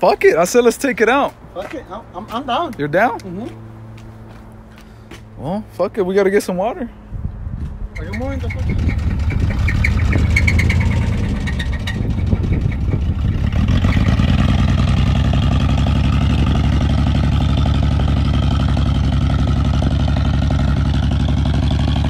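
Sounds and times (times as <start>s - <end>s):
truck engine revving: 8.0s - 22.0s.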